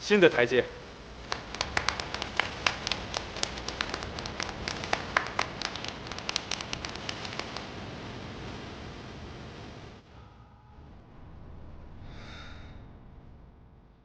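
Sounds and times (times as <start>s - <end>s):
small group applauding: 1.2s - 7.9s.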